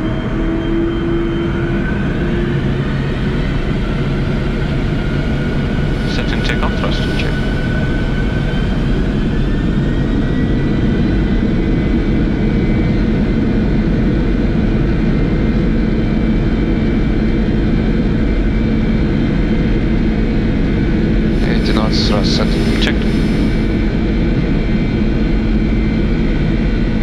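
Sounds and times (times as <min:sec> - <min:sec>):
jet engines spooling up: 0:05.8 - 0:07.7, 0:21.3 - 0:24.0.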